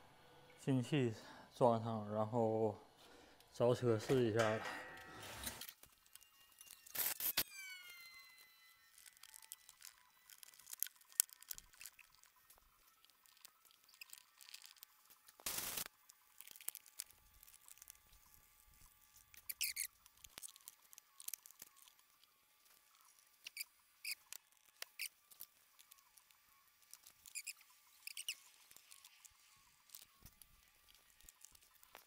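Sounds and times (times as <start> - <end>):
high rubbery squeaks: 19.3 - 20.6, 23.4 - 25.2, 26.9 - 29.3.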